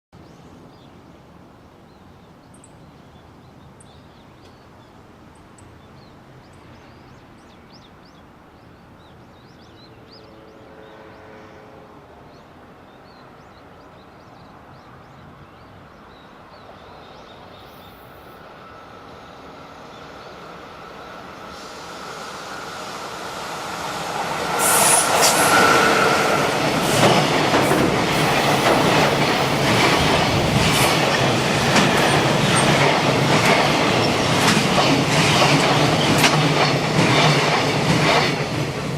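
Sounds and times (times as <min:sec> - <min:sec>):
locomotive whine: 0:17.6 - 0:33.3
freight train wheel clatter: 0:24.5 - 0:38.9.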